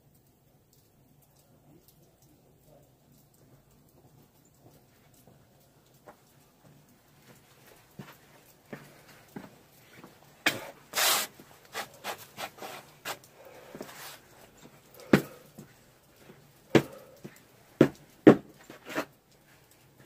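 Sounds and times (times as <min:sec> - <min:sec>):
footsteps crunching through snow: 0:07.8 - 0:13.2.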